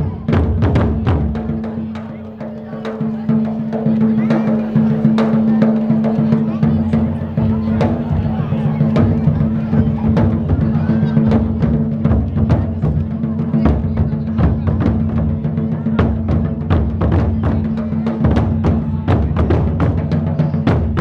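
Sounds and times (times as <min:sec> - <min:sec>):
low ringing of drums: 0:00.0 - 0:21.0
taiko drums struck fast: 0:00.0 - 0:21.0.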